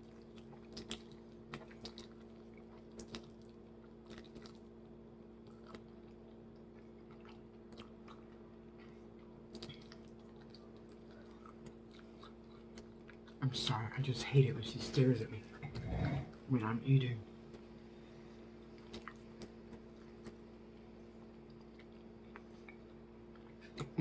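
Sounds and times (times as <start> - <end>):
chewing crunchy food: 0.0 - 14.0, 17.5 - 24.0.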